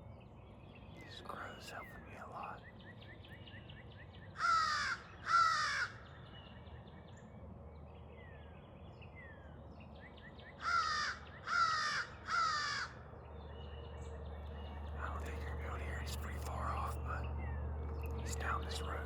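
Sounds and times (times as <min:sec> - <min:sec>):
crow cawing: 0:04.4 - 0:06.0, 0:10.6 - 0:13.1.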